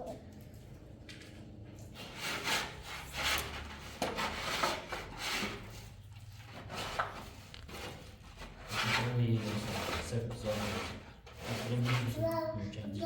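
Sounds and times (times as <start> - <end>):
hand tool scraping hard surface: 1.9 - 12.3.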